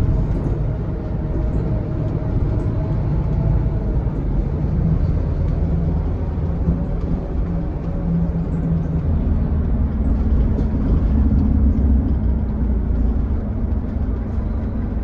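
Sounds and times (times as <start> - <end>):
bus diesel engine running: 0.0 - 15.0.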